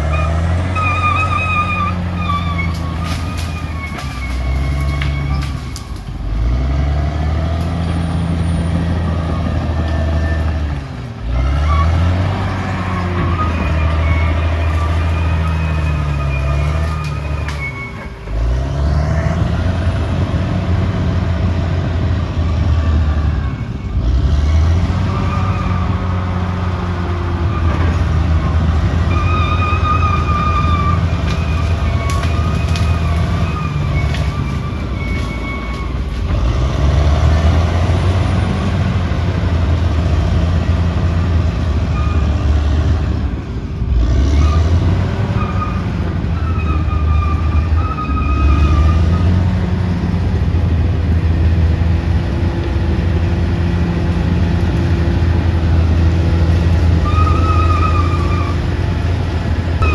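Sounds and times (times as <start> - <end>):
high squeals: 0.0 - 6.0, 11.5 - 20.3, 22.4 - 37.4, 44.4 - 49.5, 56.8 - 59.0
bulldozer diesel engine: 0.0 - 59.9.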